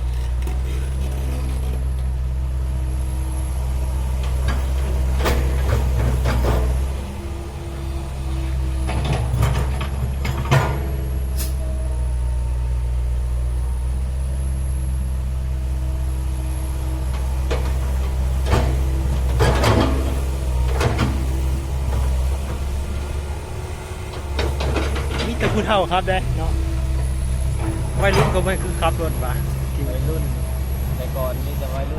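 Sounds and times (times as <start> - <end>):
heavy diesel engine running: 0.0 - 31.9
metal clanks and rattles: 8.8 - 11.6, 17.1 - 22.7, 24.0 - 25.8, 26.8 - 30.2.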